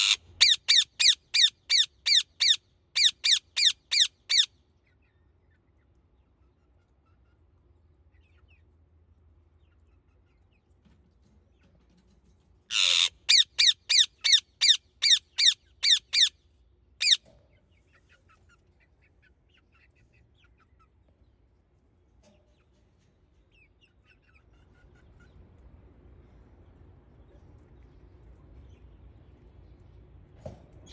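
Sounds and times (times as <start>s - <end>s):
parakeet screeching: 0.0s - 4.5s, 12.7s - 16.3s, 17.0s - 17.2s.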